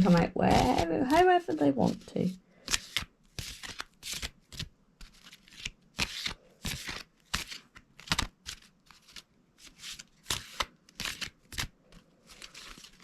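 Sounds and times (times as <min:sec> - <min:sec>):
cards riffling: 0:02.6 - 0:09.2, 0:09.9 - 0:13.0.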